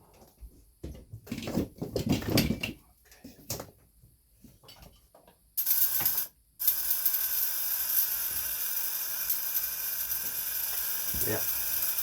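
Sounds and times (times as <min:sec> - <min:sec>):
violet ray device buzzing: 0:05.6 - 0:12.0.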